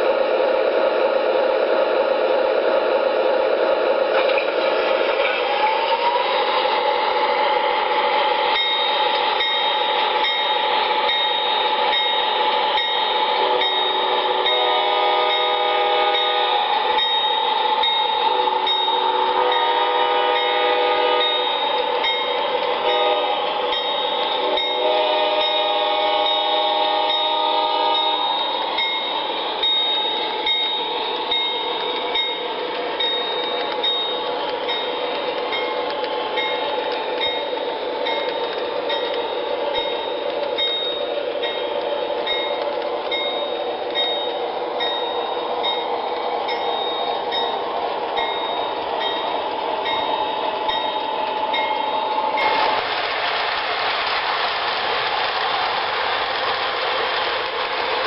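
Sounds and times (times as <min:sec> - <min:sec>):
train wheels clicking over joints: 0:04.1 - 0:58.0
train horn blasts: 0:13.2 - 0:16.7, 0:18.3 - 0:21.6, 0:22.8 - 0:28.4.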